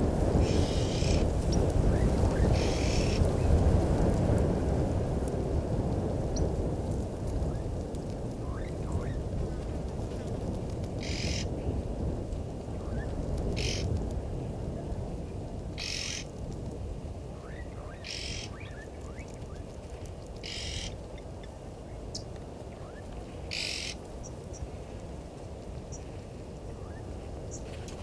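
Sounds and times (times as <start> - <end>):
steady low rumble: 0.0 - 28.0
faint bird chirps: 20.4 - 21.0.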